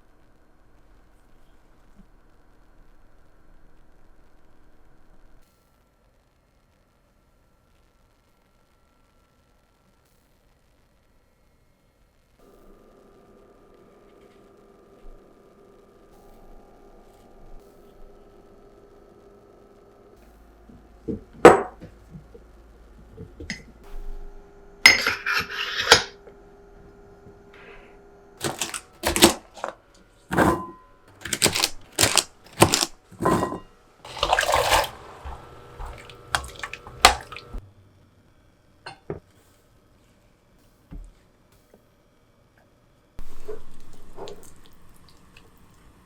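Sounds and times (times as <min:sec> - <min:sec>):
dishes and pans clinking: 0:24.9 - 0:26.2, 0:28.4 - 0:37.4.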